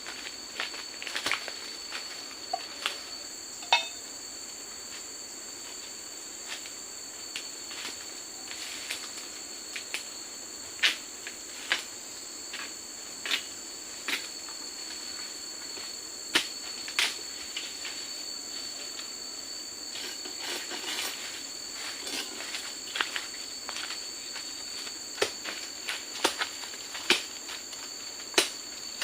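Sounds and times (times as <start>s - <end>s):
forest insects droning: 0.0s - 29.0s.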